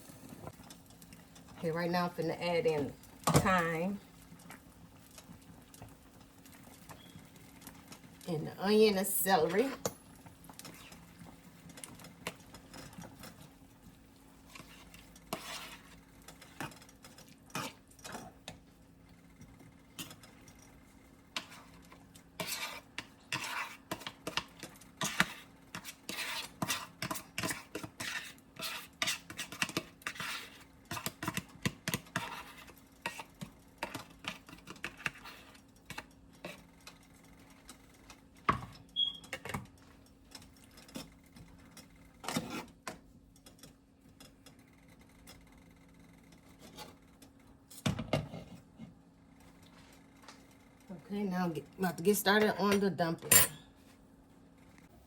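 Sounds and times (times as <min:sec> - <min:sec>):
spoon scraping a cooking pot: 0:14.4 - 0:18.5, 0:21.3 - 0:36.8, 0:42.2 - 0:42.8.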